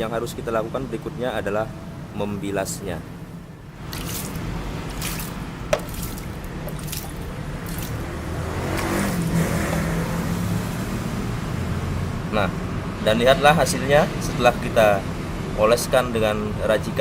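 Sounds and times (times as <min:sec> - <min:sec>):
water splashing and dripping: 0:03.2 - 0:10.4.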